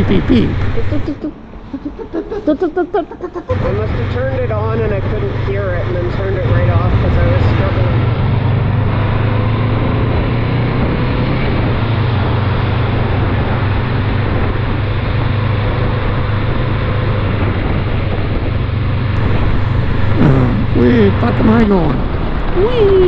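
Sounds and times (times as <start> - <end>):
road noise: 0.0 - 1.7, 3.5 - 13.8, 19.2 - 23.0
motorcycle engine drone: 3.5 - 17.2, 19.2 - 23.0.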